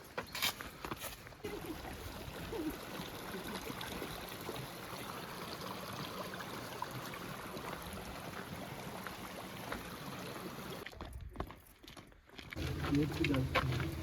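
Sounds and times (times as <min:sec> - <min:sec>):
river water flowing: 0:01.5 - 0:10.8.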